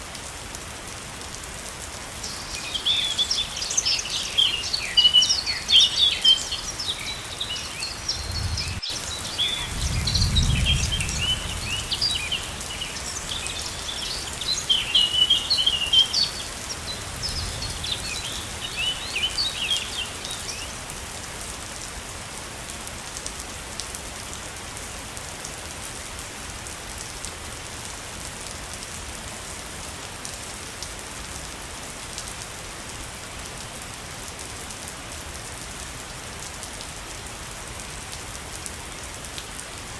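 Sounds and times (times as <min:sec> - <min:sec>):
small birds chirping: 0:02.2 - 0:20.8
waterfall rushing: 0:02.2 - 0:20.8.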